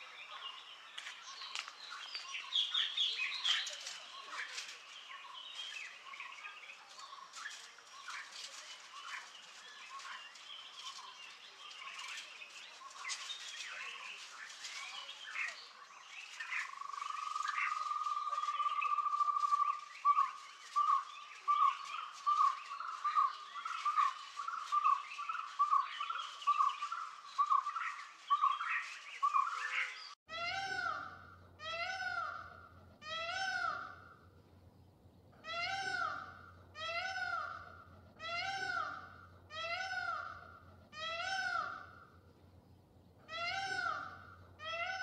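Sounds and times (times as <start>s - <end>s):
birds chirping and calling: 0.0s - 34.2s, 35.3s - 42.2s, 43.0s - 45.0s
bird trill: 0.2s - 34.2s
repeated bird call notes: 35.4s - 42.2s, 43.2s - 45.0s.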